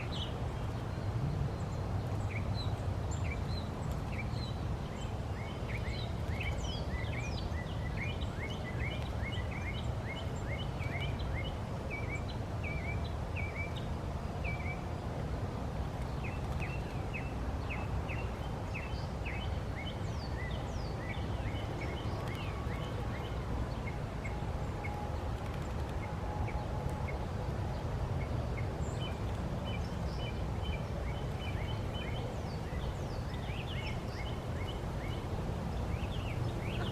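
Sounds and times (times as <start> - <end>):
birds chirping: 16.0 - 36.9.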